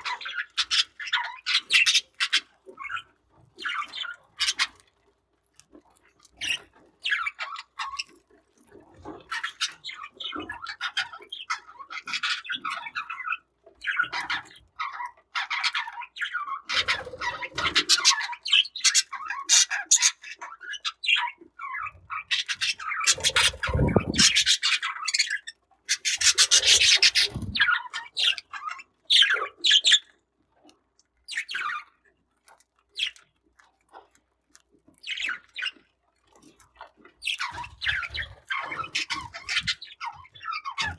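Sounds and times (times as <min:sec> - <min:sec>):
budgerigars chirping and squawking: 0:00.0 - 0:03.0, 0:03.6 - 0:04.8, 0:09.3 - 0:30.0, 0:37.2 - 0:40.9
rubbing and scraping: 0:23.1 - 0:24.6.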